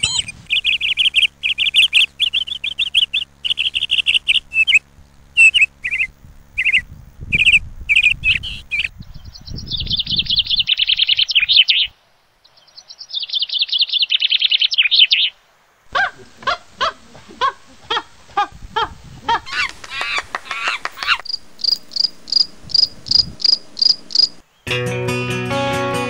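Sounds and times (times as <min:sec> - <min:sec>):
lower pitched bird calls: 0:00.0 - 0:15.4, 0:19.5 - 0:24.7
small birds chirping and trilling: 0:00.0 - 0:15.4, 0:19.5 - 0:24.7.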